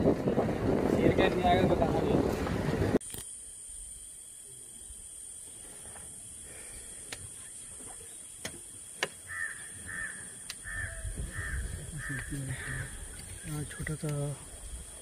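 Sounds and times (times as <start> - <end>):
bird calling: 7.4 - 14.4.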